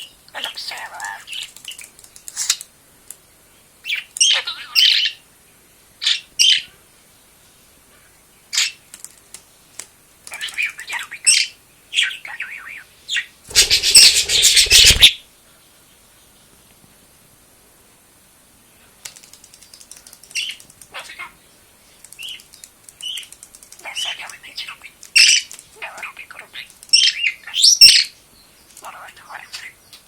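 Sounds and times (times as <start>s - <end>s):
budgerigar chirping and chattering: 13.1s - 15.1s
loud rustling: 13.5s - 15.2s.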